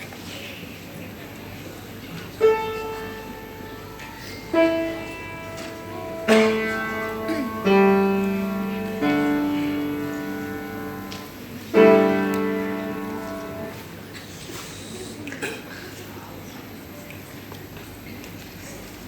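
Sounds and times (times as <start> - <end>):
piano chords ringing: 2.4 - 14.1.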